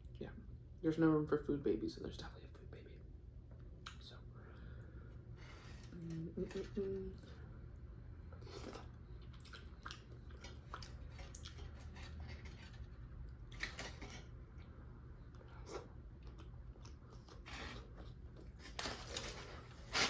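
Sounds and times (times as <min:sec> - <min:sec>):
close-miked chewing of food: 0:08.3 - 0:14.1, 0:15.2 - 0:18.4.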